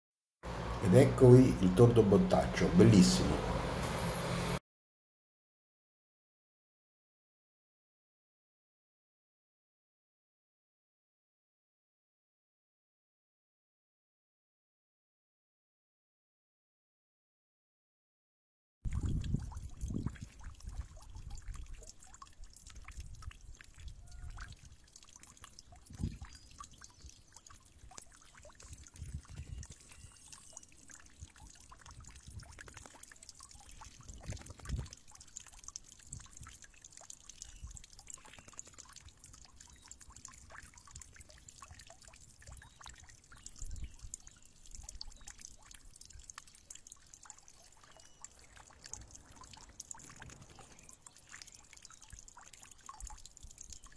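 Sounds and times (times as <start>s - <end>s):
water trickling and dripping: 18.9s - 53.9s.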